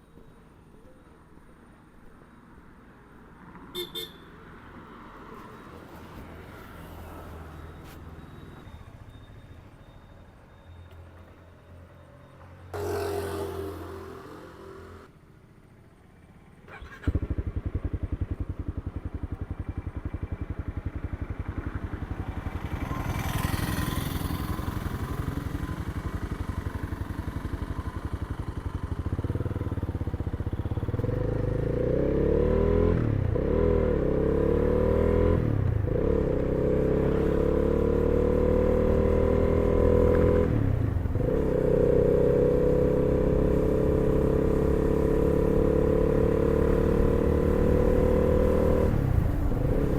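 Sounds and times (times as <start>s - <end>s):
motorcycle engine accelerating: 16.7s - 49.9s.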